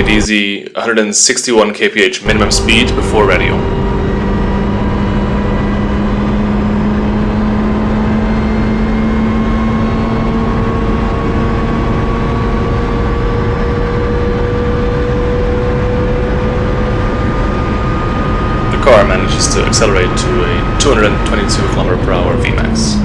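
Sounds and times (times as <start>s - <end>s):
car engine accelerating: 0.0s - 0.3s, 2.2s - 23.0s
road and wind noise: 2.2s - 23.0s.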